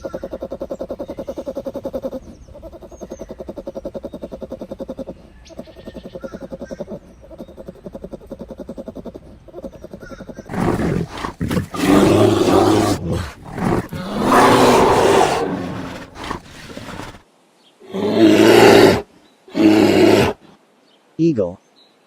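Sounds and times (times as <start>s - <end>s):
bear growling and roaring: 6.2s - 17.2s, 17.8s - 20.5s.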